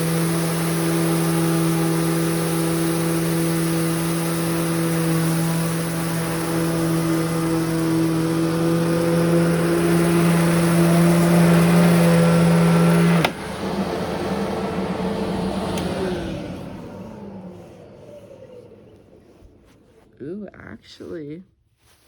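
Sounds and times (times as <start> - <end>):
motor winding down: 0.0 - 20.2
vacuum cleaner humming: 0.0 - 20.4
vacuum cleaner switch click: 8.8 - 19.2.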